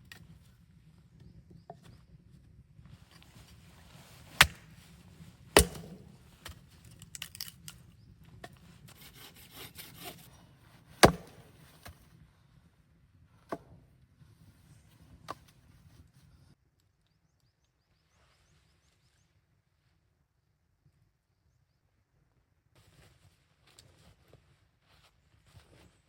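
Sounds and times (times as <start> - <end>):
axe chopping wood: 4.3 - 4.8, 5.5 - 7.6, 11.0 - 12.0
wood crackling and snapping: 4.4 - 4.7, 5.6 - 7.8.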